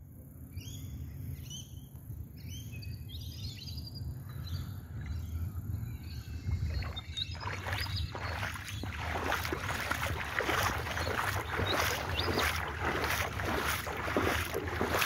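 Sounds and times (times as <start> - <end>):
low steady rumble: 3.1 - 15.0
birds chirping and calling: 6.1 - 15.0.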